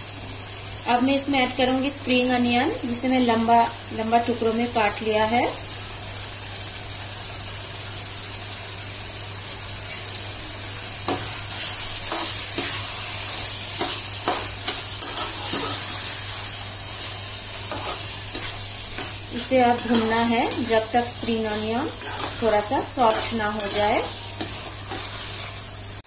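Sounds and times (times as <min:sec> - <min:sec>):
onions sizzling in a pan: 0:00.0 - 0:26.0
metal spatula scraping a pan: 0:11.1 - 0:25.7.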